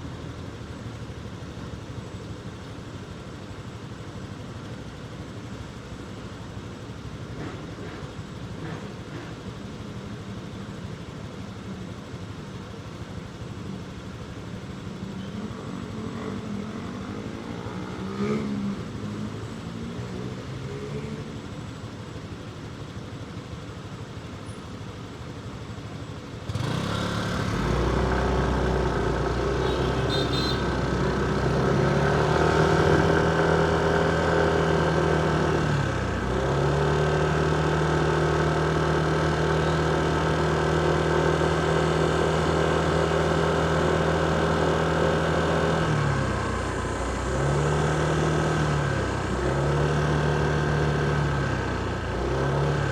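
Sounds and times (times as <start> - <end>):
other vehicle engines: 0.0 - 52.9
motorcycle engine running: 10.8 - 52.9.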